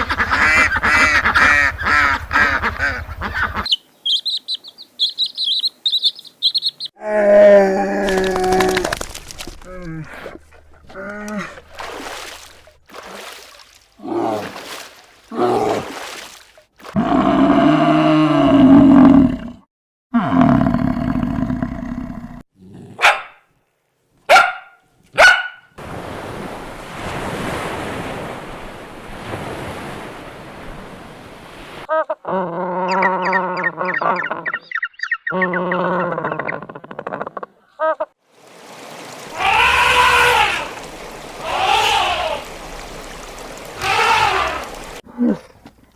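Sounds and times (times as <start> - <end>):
animal calls: 31.9 - 38.1, 39.3 - 42.6, 43.3 - 45.5.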